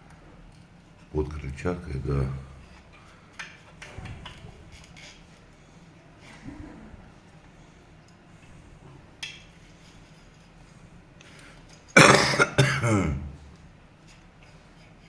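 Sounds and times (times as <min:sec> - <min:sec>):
person coughing: 0:12.0 - 0:13.4.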